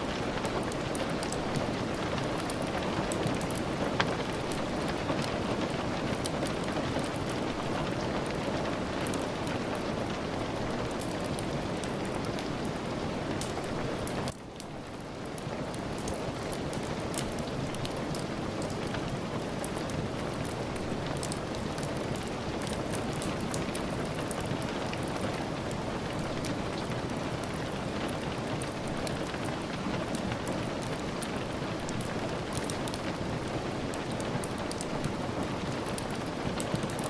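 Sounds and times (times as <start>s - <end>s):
steady rain: 0.0s - 37.0s
wood fire crackling: 0.0s - 37.0s.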